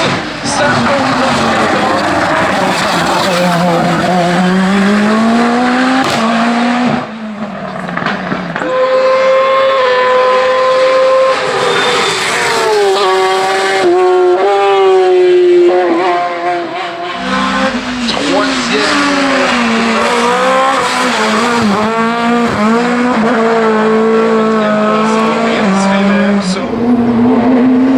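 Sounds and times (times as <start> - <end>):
quick gear changes: 0.0 - 5.3
race car engine at full throttle: 0.0 - 27.9.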